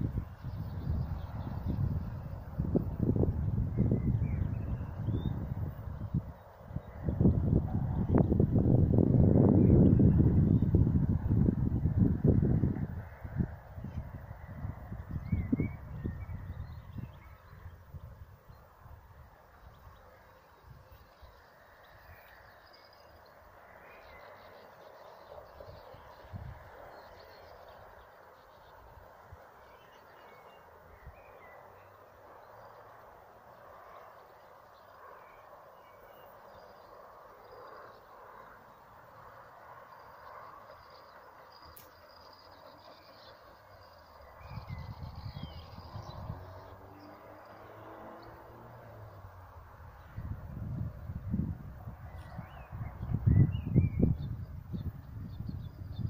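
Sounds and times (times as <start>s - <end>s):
birds chirping faintly: 13.0s - 50.2s.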